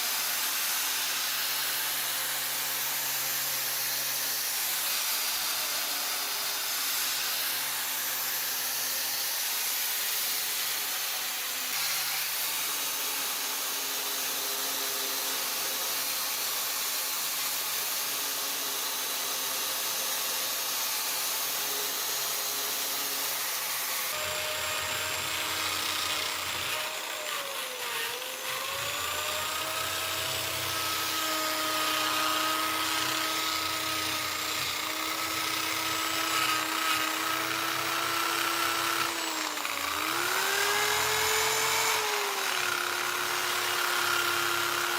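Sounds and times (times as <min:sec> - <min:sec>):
electric drill whining: 0:00.0 - 0:44.9.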